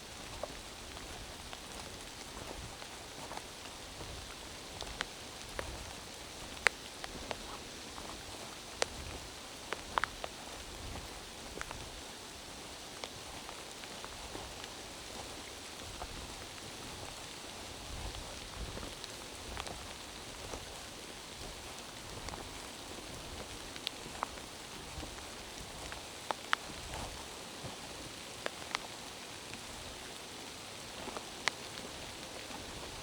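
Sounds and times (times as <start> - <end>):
drops ticking on leaves: 0.0 - 33.0
rain falling in forest: 0.0 - 33.0.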